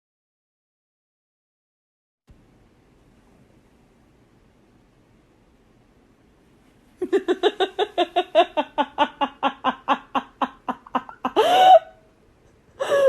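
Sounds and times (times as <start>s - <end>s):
person laughing rapidly: 7.0s - 11.9s.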